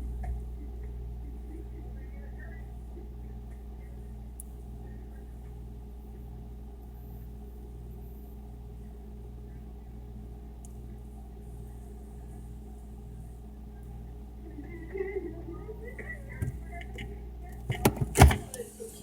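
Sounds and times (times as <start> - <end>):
refrigerator humming: 0.0 - 19.0
faint refrigerator clicks: 16.3 - 18.6.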